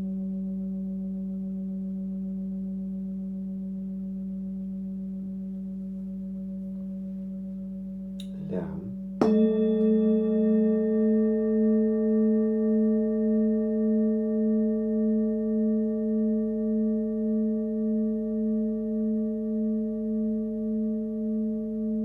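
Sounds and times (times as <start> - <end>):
singing bowl ringing: 9.0 - 22.0.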